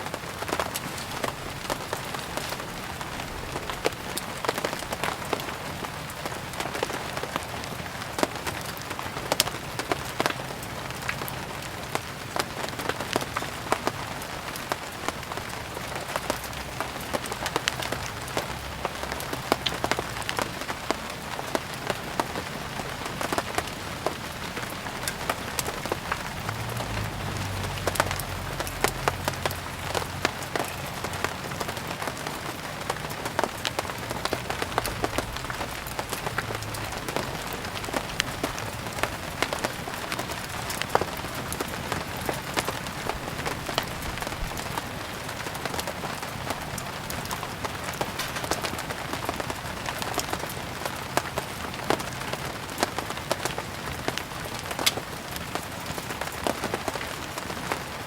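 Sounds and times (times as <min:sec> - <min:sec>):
steady rain: 0:00.0 - 0:58.0
wood fire crackling: 0:00.0 - 0:58.0.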